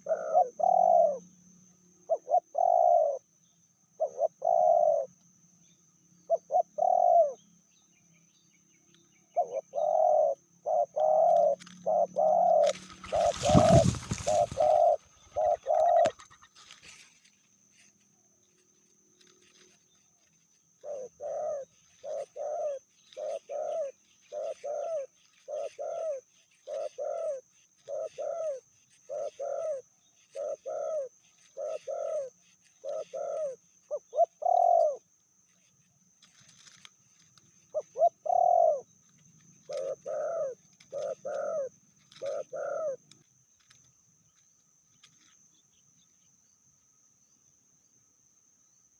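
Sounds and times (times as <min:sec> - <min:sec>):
dove cooing: 0:00.0 - 0:01.4, 0:02.0 - 0:03.3, 0:04.0 - 0:05.2, 0:06.2 - 0:07.4, 0:09.3 - 0:17.9, 0:19.2 - 0:36.9, 0:37.6 - 0:43.7
high insect whine: 0:00.0 - 0:48.9.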